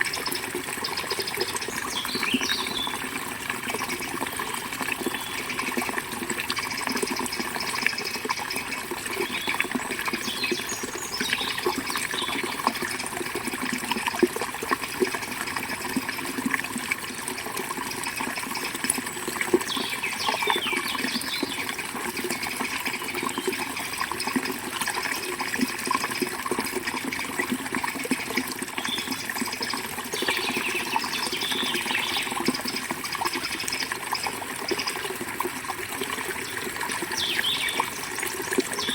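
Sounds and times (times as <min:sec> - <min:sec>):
bird chirps: 0:01.8 - 0:03.0, 0:37.2 - 0:38.0.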